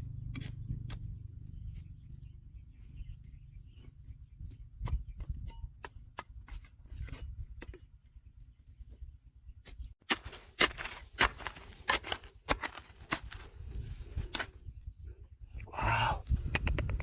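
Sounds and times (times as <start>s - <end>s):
hand tool scraping gravel: 10.0s - 14.6s.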